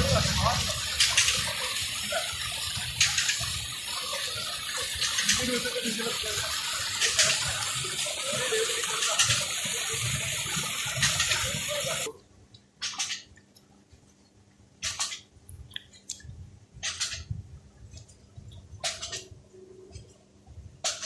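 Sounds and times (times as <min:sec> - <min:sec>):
steady rushing noise: 0:00.0 - 0:12.1.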